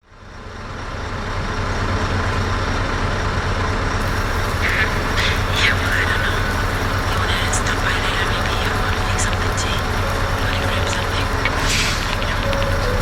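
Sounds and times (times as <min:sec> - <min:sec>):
diesel truck engine idling: 0:04.0 - 0:13.0.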